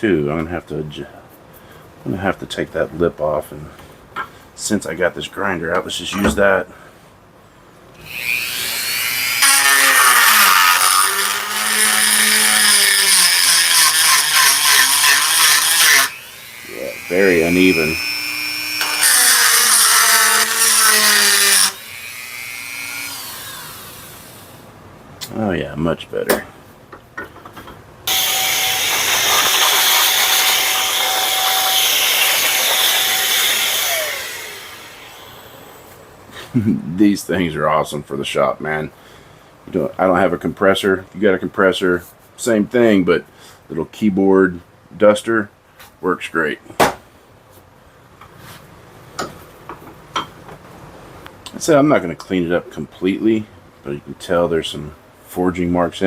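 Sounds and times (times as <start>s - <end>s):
rotary grinder grinding steel: 8.1s - 24.5s, 28.1s - 35.8s.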